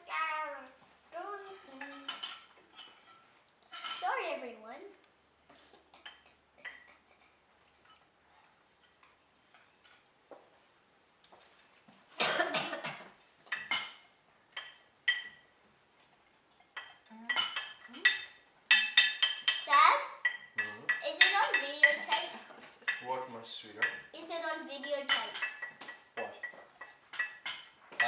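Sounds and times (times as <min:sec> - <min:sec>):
cutlery and dishes clinking: 0:01.4 - 0:04.2, 0:06.0 - 0:07.1, 0:12.6 - 0:15.5, 0:16.5 - 0:24.1, 0:24.8 - 0:28.0.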